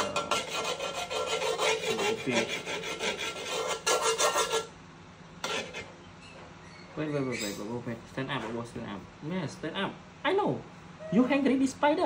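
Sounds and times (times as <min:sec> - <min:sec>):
utensil scraping cooking pan: 0:00.0 - 0:04.7, 0:05.4 - 0:06.0.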